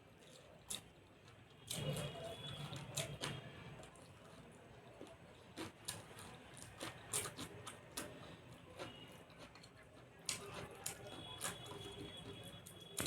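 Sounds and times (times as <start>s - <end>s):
chewing: 2.7s - 13.0s.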